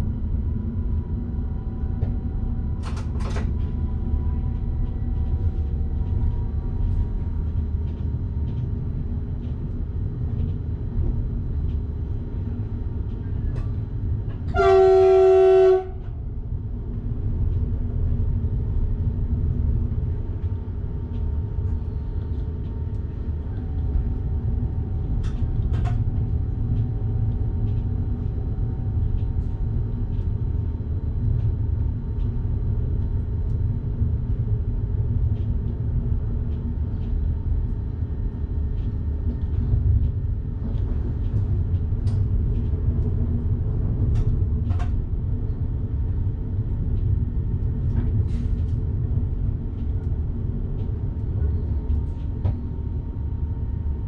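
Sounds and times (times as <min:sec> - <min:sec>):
electric train rumbling on track: 0:00.0 - 0:54.0.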